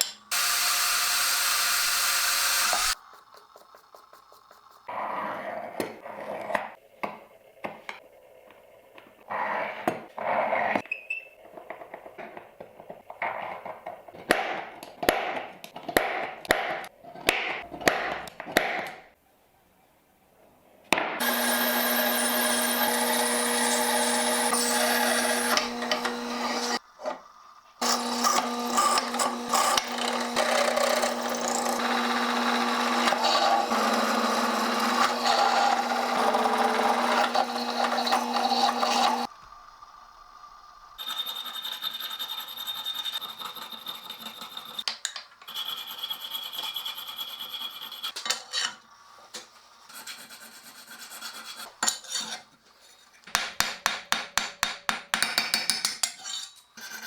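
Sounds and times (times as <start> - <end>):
power tool humming: 0.3 - 3.0, 21.2 - 26.8, 27.8 - 39.3
tool rasping on brass: 0.3 - 3.0, 21.2 - 26.8, 27.8 - 39.3
intermittent scraping: 0.3 - 5.5, 21.2 - 27.2, 27.8 - 39.3.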